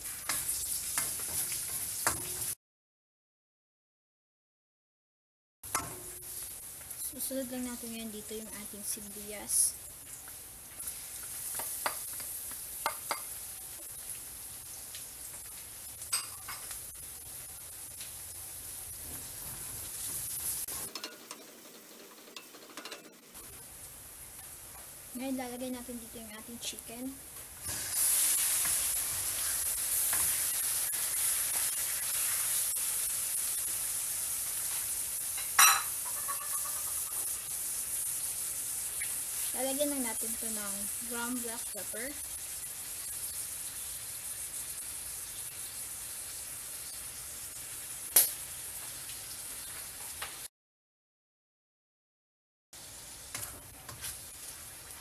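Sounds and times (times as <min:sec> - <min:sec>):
spatula stirring in wok: 0:00.0 - 0:02.5, 0:27.7 - 0:39.6
onion and garlic sizzling in oil: 0:00.0 - 0:02.6, 0:05.7 - 0:50.5, 0:52.8 - 0:55.0.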